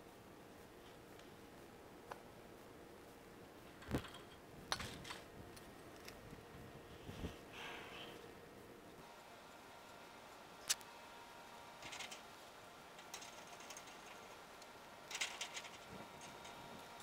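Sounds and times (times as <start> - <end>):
hand tools clicking and rattling: 13.0 - 14.2, 15.1 - 16.6.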